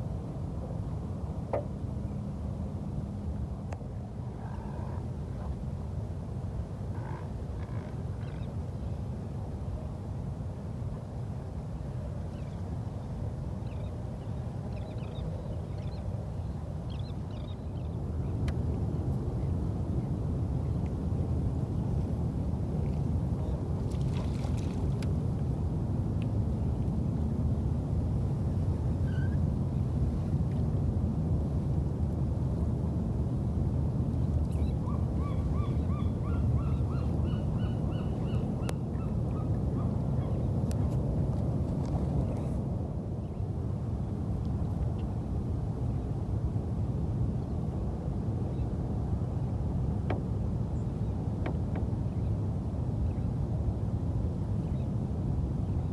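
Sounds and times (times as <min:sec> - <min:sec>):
boat low rumble: 0:00.0 - 0:55.9.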